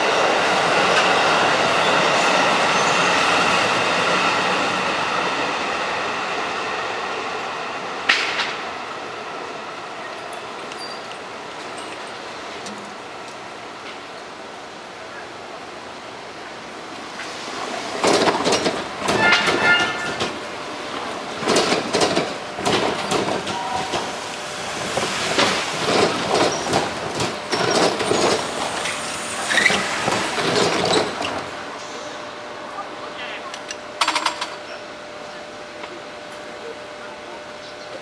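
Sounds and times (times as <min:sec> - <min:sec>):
train wheels clattering: 0:18.0 - 0:20.4, 0:21.4 - 0:24.2, 0:24.8 - 0:31.5.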